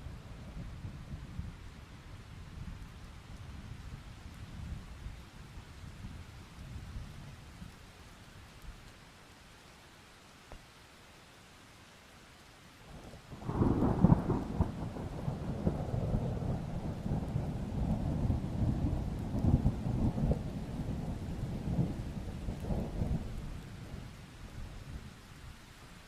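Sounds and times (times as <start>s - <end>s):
rain hissing: 3.6s - 26.0s
thunder rumbling: 13.4s - 24.0s.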